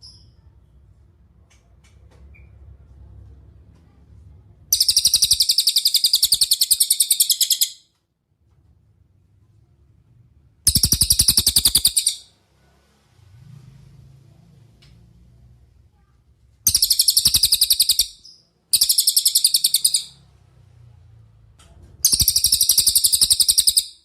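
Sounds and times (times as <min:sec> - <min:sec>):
bird trilling: 0:04.7 - 0:07.8, 0:10.7 - 0:12.3, 0:16.7 - 0:20.2, 0:22.0 - 0:24.0.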